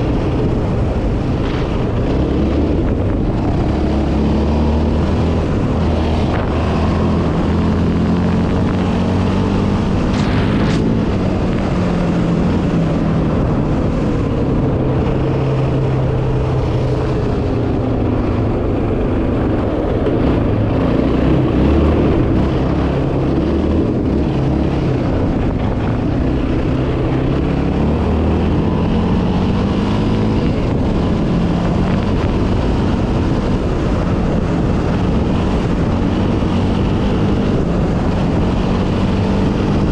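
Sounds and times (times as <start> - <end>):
quad bike engine revving: 0.0 - 17.3, 19.7 - 39.9.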